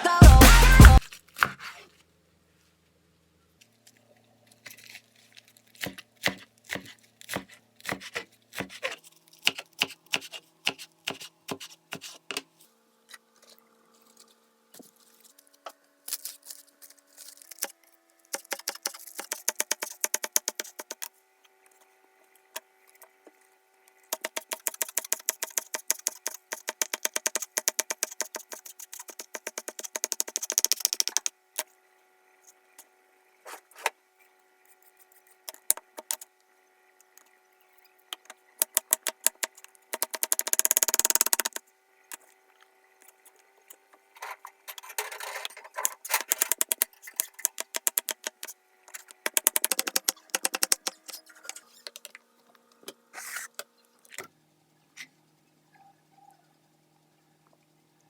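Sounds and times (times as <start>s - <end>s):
knife chopping on cutting board: 1.4s - 1.8s, 5.8s - 12.4s.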